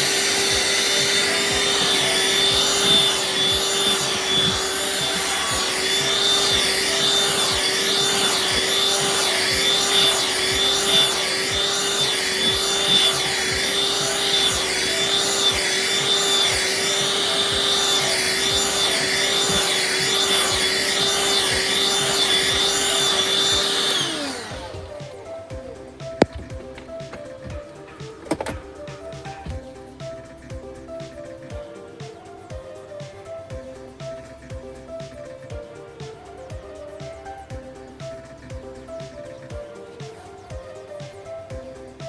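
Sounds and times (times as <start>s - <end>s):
vacuum cleaner motor whining: 0.0s - 32.2s.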